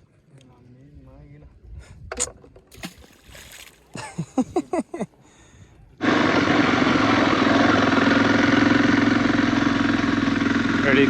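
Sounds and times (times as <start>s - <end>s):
wind noise: 1.0s - 3.6s
motorcycle engine running: 6.4s - 11.0s.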